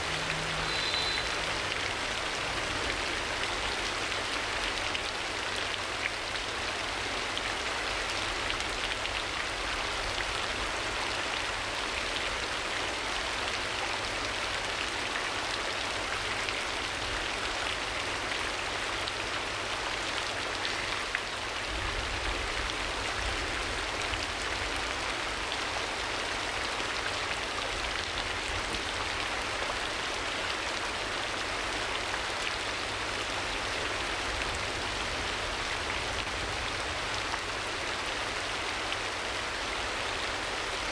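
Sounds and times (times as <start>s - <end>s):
rain hissing: 0.0s - 40.9s.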